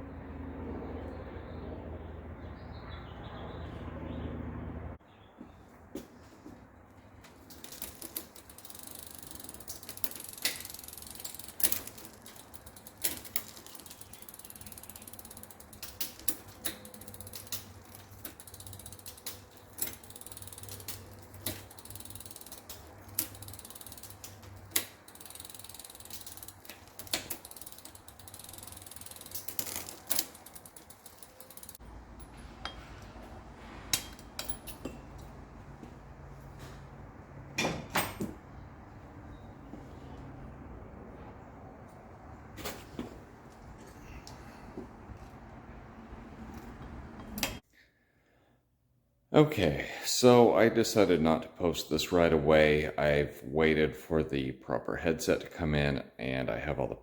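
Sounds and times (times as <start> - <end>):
bicycle ratcheting: 7.4 - 33.1
metallic clicks and knocks: 7.5 - 33.3.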